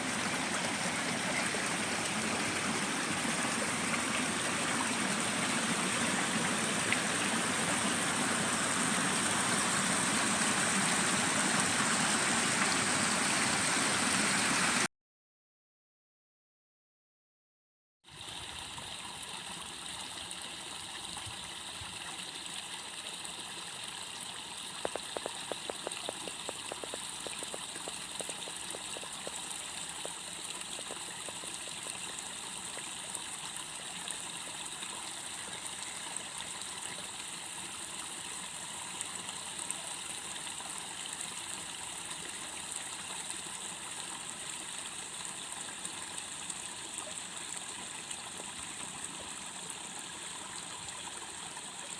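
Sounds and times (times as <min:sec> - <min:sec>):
running water: 0:00.0 - 0:14.9, 0:18.1 - 0:51.9
clicking frog calls: 0:24.8 - 0:32.0.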